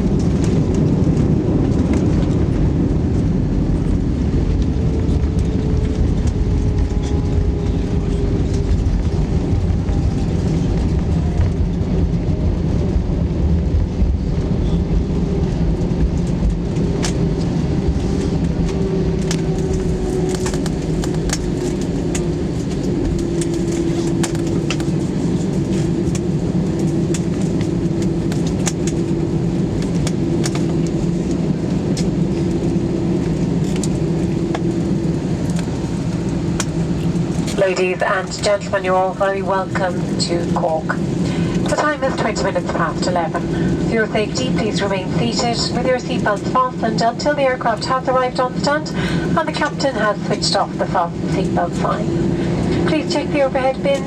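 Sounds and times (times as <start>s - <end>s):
airliner rolling on runway: 0.0s - 54.0s
jet engine whine winding down: 0.0s - 54.0s.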